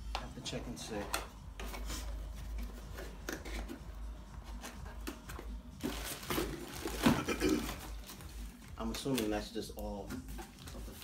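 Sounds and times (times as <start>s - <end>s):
packaging rustling: 5.8s - 9.5s.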